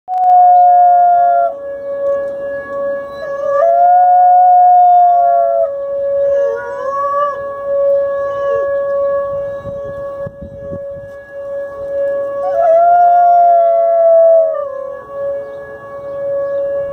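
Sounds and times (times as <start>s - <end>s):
dog howling: 0.1s - 1.6s, 2.7s - 9.4s, 12.3s - 16.6s.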